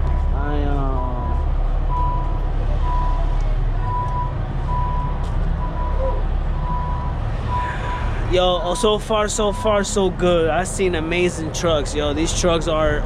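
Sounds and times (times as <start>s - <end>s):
steady low rumble: 0.0s - 13.0s
reversing alarm beeping: 1.0s - 10.0s.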